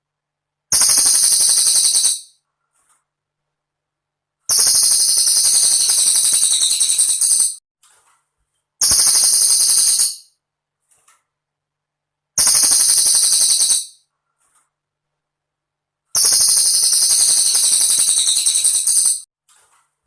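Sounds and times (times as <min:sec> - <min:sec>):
high-pitched bird trills: 0:00.8 - 0:02.4, 0:04.5 - 0:07.6, 0:08.8 - 0:10.3, 0:12.4 - 0:14.0, 0:16.2 - 0:19.2.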